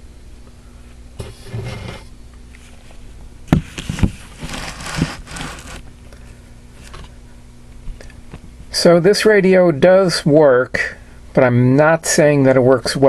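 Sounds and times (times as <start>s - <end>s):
faint steady hum: 0.0s - 13.0s
rustling handling noise: 1.2s - 7.2s.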